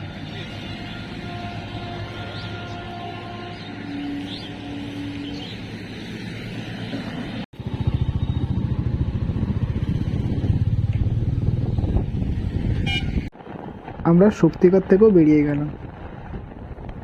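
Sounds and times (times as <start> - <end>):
road traffic hum: 0.0 - 14.0
motorcycle engine running: 7.6 - 13.2.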